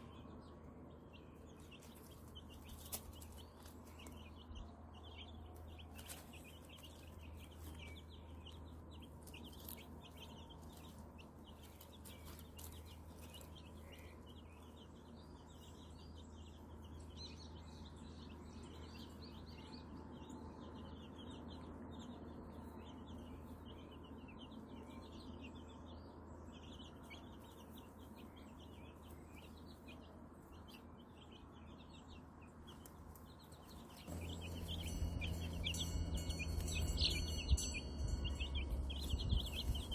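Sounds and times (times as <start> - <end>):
chicks peeping: 0.0 - 39.9
low steady hum: 33.8 - 39.9.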